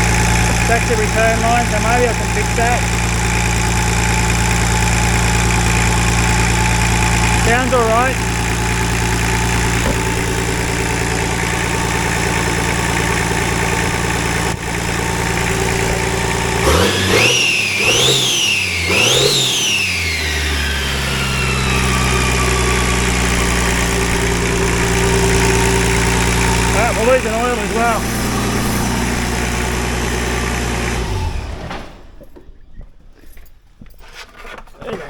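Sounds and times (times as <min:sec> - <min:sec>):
diesel engine idling and revving: 0:00.0 - 0:32.5.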